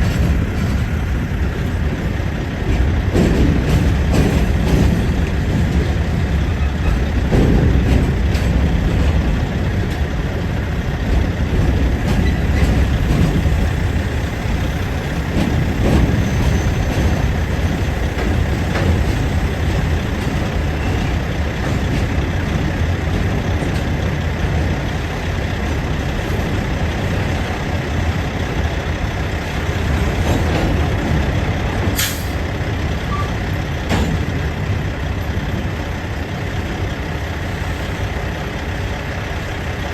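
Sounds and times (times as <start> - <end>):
freight train rumbling past: 0.0 - 39.9
short sharp hiss: 32.0 - 32.4.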